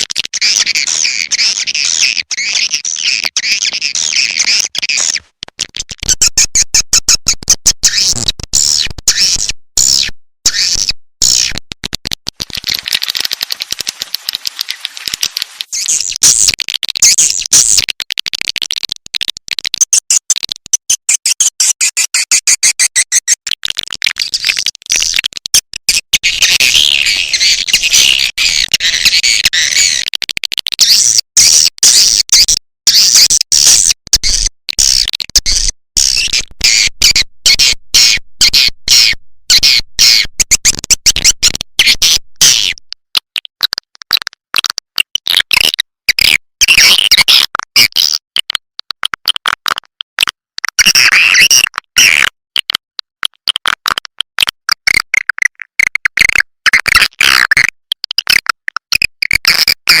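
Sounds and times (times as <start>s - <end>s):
recorded swiftlet chirps: 12.4s - 17.8s, 19.8s - 23.4s.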